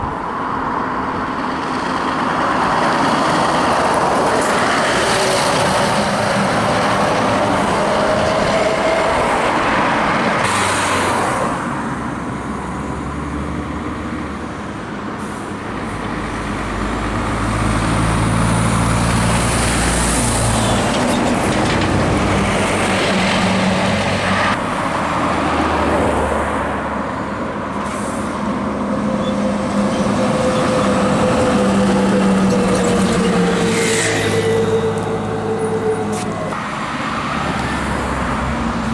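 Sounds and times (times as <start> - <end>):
diesel trucks driving past: 0.0 - 38.9
road noise: 0.0 - 38.9.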